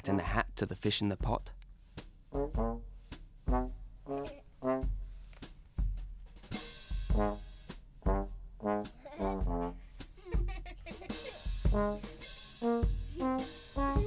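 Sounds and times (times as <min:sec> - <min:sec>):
low drum beat: 0:00.0 - 0:14.0
brassy trombone-like notes: 0:02.3 - 0:05.1, 0:06.5 - 0:10.0, 0:11.0 - 0:14.0.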